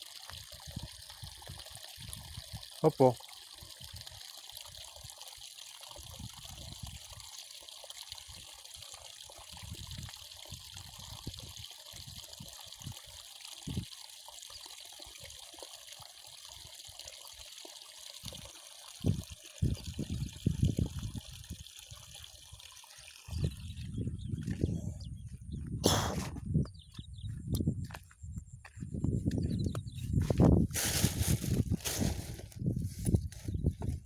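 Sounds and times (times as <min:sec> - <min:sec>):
water trickling: 0:00.0 - 0:24.8.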